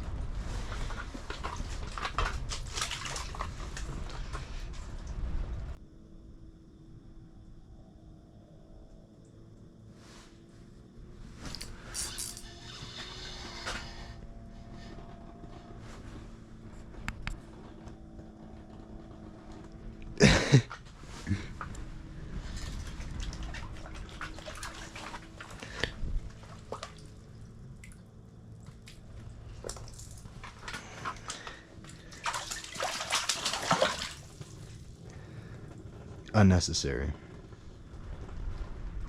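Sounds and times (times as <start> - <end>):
faint steady hum: 0.0 - 39.0
water dripping and sloshing: 0.4 - 5.8, 22.3 - 35.2
water splashing: 1.2 - 3.8, 22.8 - 28.1, 29.6 - 34.8.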